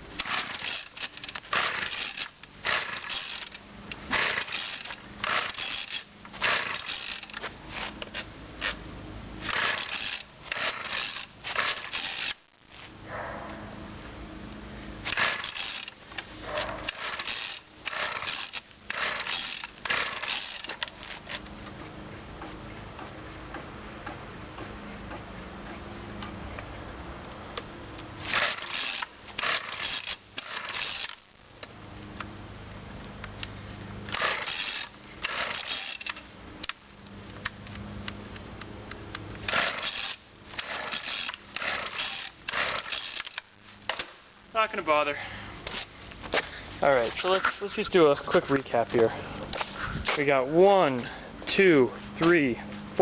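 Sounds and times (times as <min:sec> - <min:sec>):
recoil starter rope pulls rattling: 0:00.1 - 0:08.8, 0:09.4 - 0:12.9, 0:15.0 - 0:21.8, 0:27.9 - 0:31.4, 0:34.0 - 0:36.8, 0:39.4 - 0:53.0.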